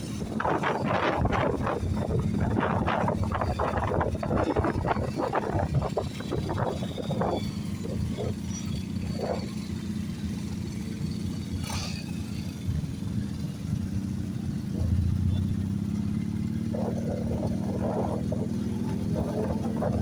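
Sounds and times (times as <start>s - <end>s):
motorcycle engines rumbling: 0.0s - 20.0s.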